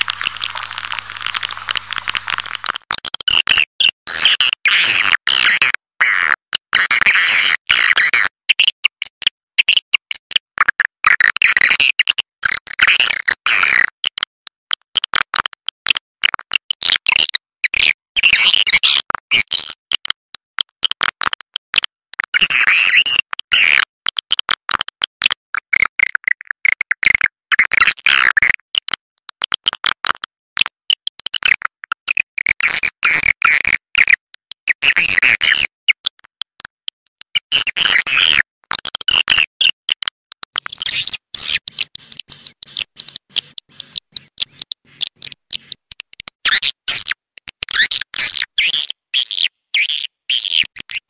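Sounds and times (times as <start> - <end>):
swiftlets chirping and twittering: 0.0 - 2.8, 40.6 - 45.8.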